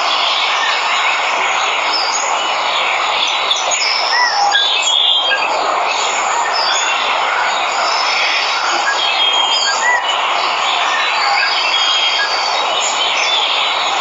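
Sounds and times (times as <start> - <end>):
birds chirping and whistling: 3.5 - 13.7.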